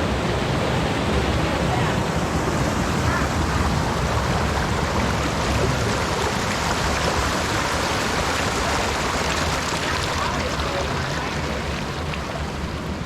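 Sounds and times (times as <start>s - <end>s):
creek rushing over rocks: 0.0s - 13.0s.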